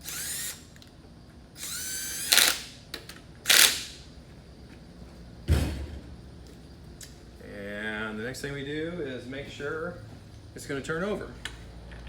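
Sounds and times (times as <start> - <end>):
power drill whining: 0.0 - 0.7, 1.6 - 2.7
dull thump: 5.5 - 6.2.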